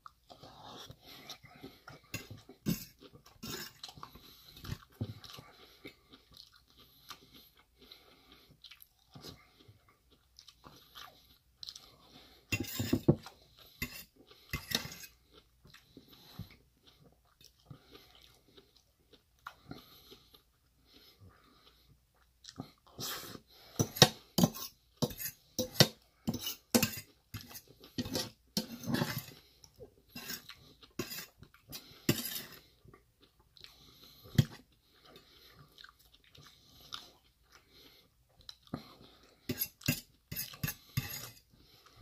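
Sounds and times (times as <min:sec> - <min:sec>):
chewing and crunching: 0:00.0 - 0:42.0
fork scraping metal bowl: 0:02.1 - 0:03.8, 0:12.5 - 0:13.2, 0:13.8 - 0:15.2, 0:23.8 - 0:29.4, 0:30.1 - 0:32.6, 0:39.5 - 0:41.4.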